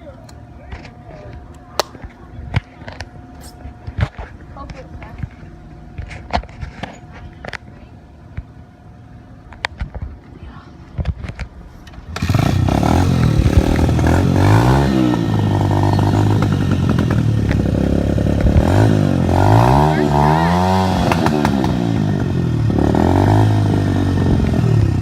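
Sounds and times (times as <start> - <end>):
dirt bike engine revving: 11.8 - 25.0.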